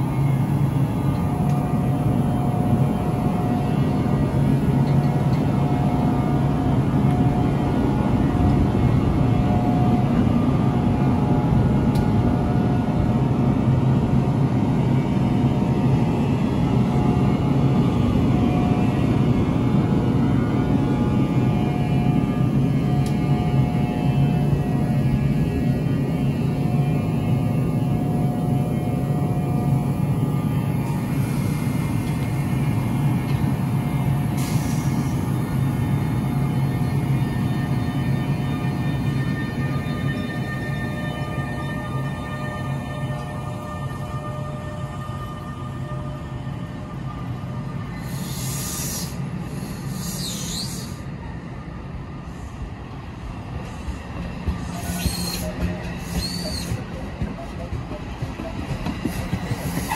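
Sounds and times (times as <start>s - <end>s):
train humming: 0.0s - 59.9s
air hiss: 34.4s - 35.2s, 48.0s - 51.0s
wheel squeal: 54.7s - 56.9s.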